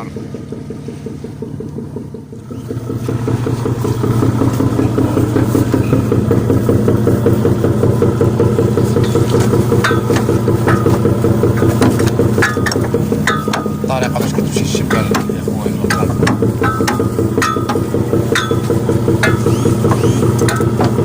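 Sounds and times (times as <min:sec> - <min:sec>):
boat engine running: 0:00.0 - 0:21.0
sharp knocks: 0:09.0 - 0:21.0.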